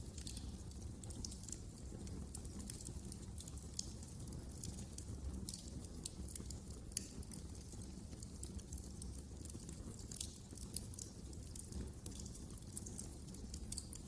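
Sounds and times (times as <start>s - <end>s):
fire crackling: 0.0s - 14.0s
low rumble of flames: 0.0s - 14.0s.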